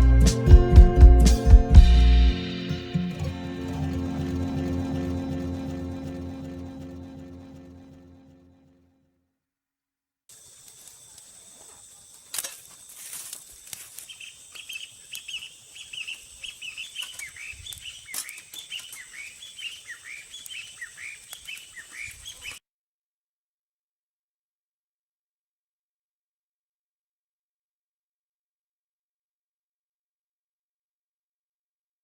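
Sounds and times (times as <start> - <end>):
birds chirping: 1.4 - 7.1, 10.4 - 22.6
steady high tone: 1.7 - 8.4
sharp clicks: 17.0 - 19.1, 20.4 - 20.6, 21.2 - 21.7.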